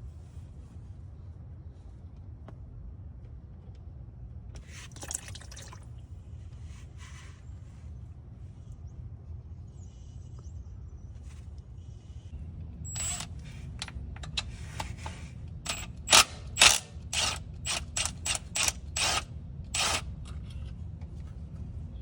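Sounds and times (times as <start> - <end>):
steady low hum: 0.0 - 22.0
ratchet wrench clicking: 15.7 - 20.1.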